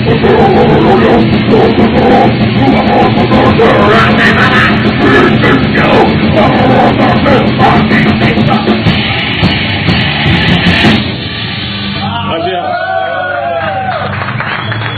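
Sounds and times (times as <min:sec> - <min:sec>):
thrash metal band playing: 0:00.0 - 0:13.9
shouted vocals: 0:12.0 - 0:14.1.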